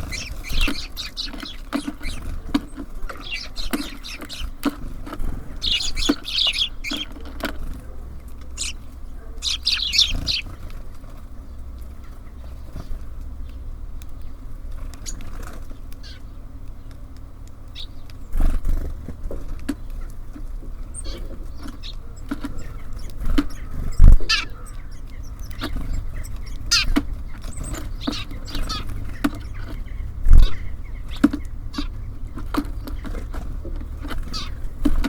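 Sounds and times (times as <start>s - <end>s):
birds pecking on wooden feeder: 0.0s - 35.0s
steady low rumble: 0.0s - 35.0s.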